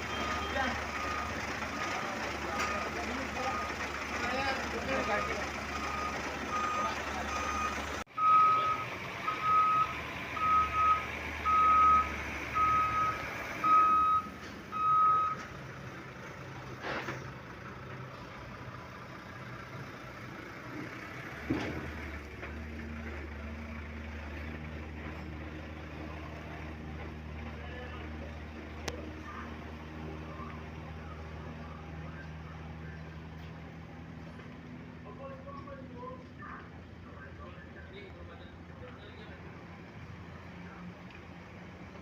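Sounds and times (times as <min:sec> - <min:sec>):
reversing alarm beeping: 0:00.0 - 0:15.4
diesel engine running: 0:00.0 - 0:42.0.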